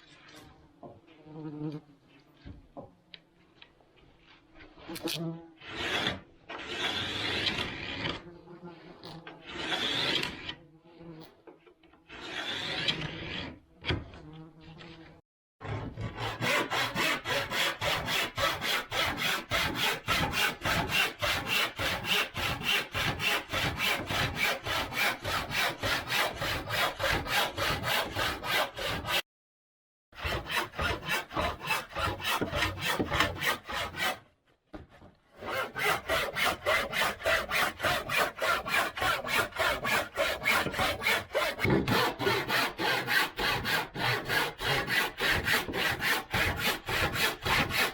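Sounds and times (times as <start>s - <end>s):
hand saw cutting wood: 4.8s - 10.6s, 11.2s - 29.3s, 30.2s - 47.9s.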